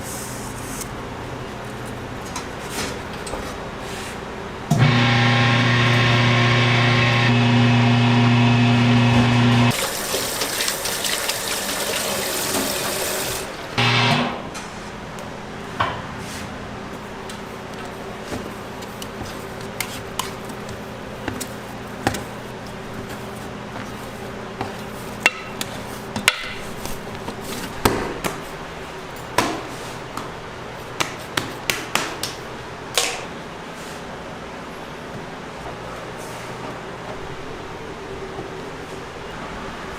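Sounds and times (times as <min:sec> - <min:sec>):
machine hum: 0:04.3 - 0:15.8.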